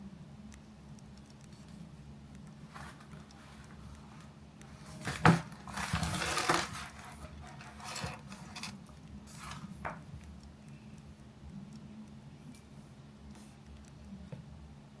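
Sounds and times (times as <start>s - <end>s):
small objects clattering: 4.8s - 9.6s.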